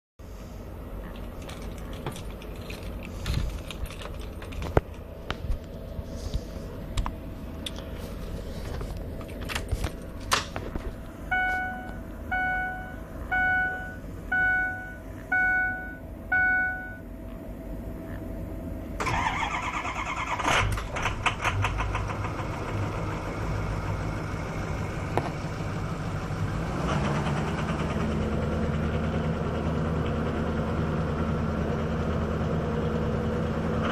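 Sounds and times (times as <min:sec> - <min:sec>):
diesel engine idling: 0:00.2 - 0:33.9
diesel engine cranking by starter: 0:01.0 - 0:11.0, 0:19.0 - 0:33.9
faint steady tone: 0:11.2 - 0:17.4
short electronic beeps: 0:11.3 - 0:17.1.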